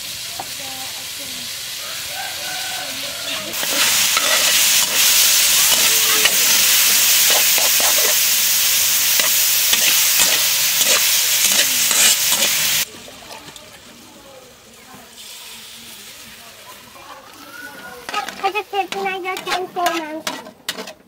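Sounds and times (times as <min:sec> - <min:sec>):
food sizzling in a wok: 0:00.0 - 0:21.0
metal spatula scraping a pan: 0:03.2 - 0:08.3, 0:09.0 - 0:12.8, 0:17.9 - 0:21.0.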